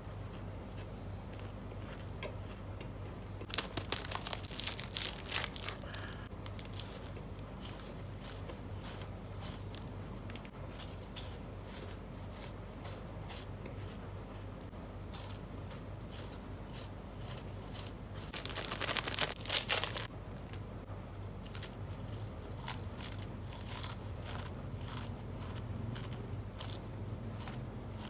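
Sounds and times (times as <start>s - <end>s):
plastic wrapper crinkling: 3.5s - 13.5s, 15.2s - 20.6s.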